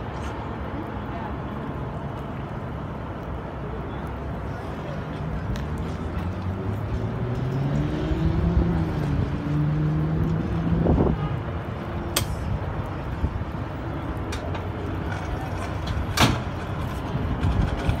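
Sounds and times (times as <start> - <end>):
train wheels rumbling on rail: 14.0 - 18.0.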